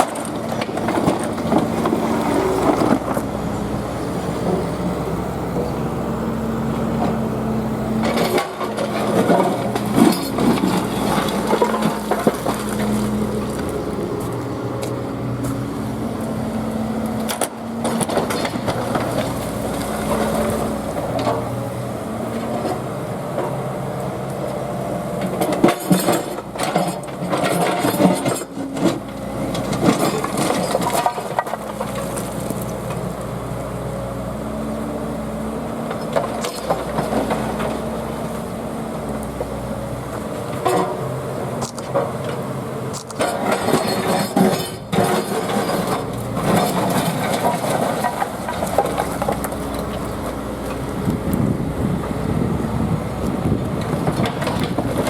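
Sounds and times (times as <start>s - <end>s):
concrete slabs clattering and scraping: 0.0s - 5.8s, 8.0s - 15.7s, 25.2s - 32.6s, 40.2s - 50.9s
diesel engine running under load: 0.0s - 55.0s.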